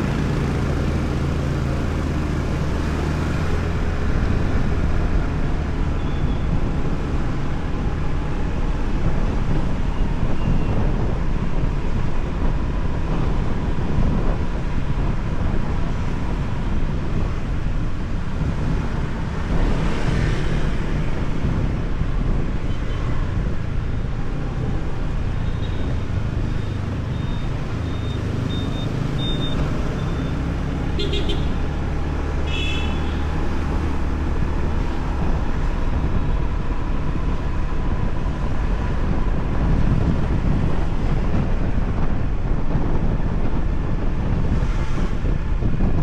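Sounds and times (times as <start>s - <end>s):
traffic: 0.0s - 46.0s
wind: 0.0s - 46.0s
motorbike engine rumble: 24.5s - 42.6s
short high beeps: 27.1s - 30.4s
vehicle horn toots: 31.0s - 31.6s, 32.5s - 33.4s.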